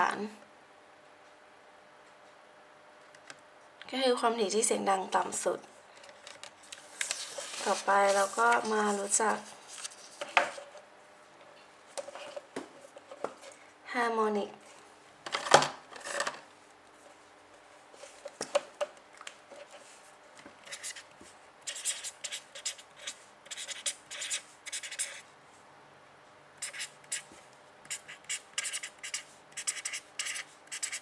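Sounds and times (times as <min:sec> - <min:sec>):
pen scratching on a surface: 0:20.7 - 0:21.0, 0:21.7 - 0:25.2, 0:26.6 - 0:27.3, 0:27.9 - 0:31.0.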